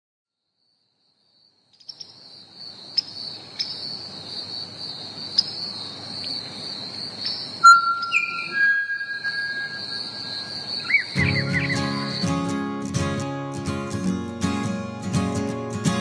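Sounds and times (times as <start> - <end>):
insect chorus: 0.4 - 13.0.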